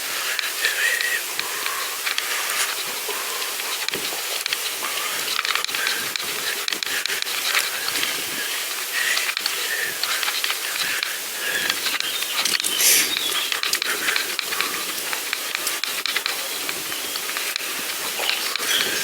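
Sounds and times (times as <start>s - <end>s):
light clicks: 9.0s - 19.0s.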